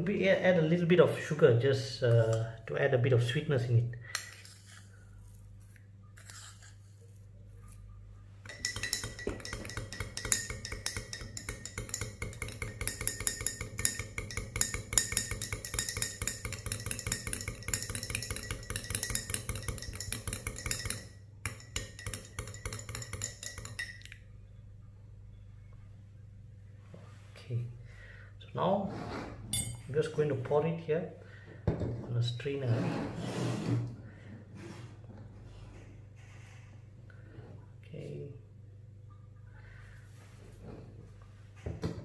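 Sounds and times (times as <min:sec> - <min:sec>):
spoon clinking against glass: 0:08.5 - 0:24.2, 0:29.6 - 0:29.9.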